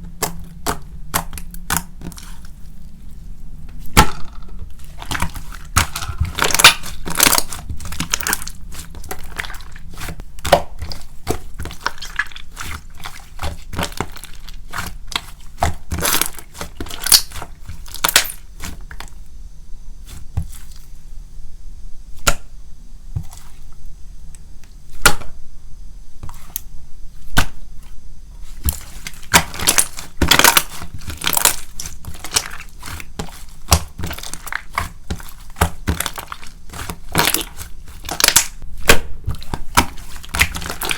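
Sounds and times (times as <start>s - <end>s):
hands squishing slime: 0.0s - 19.2s, 26.2s - 40.9s.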